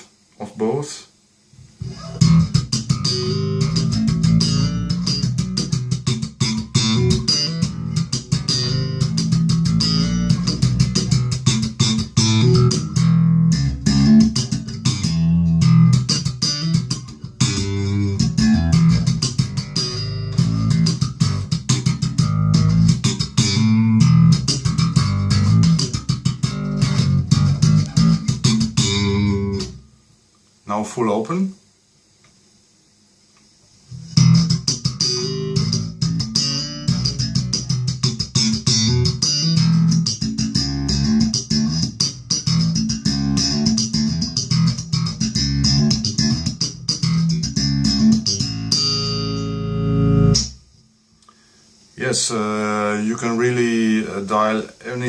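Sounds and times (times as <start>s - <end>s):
electric bass plucked notes: 1.8s - 29.8s, 34.0s - 50.6s.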